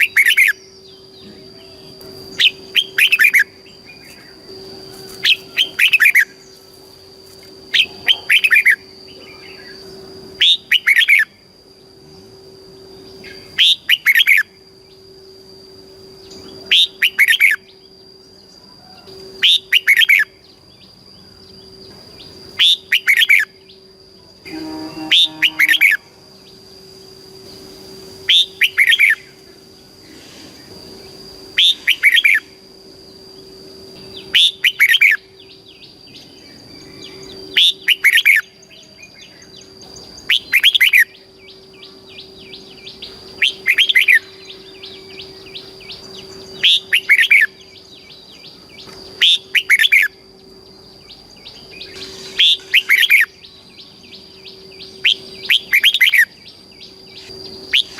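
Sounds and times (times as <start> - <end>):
faint high whine: 0.0 - 57.9
low hum: 0.0 - 57.9
bulbul singing warbling phrases: 7.7 - 11.4, 24.5 - 26.1.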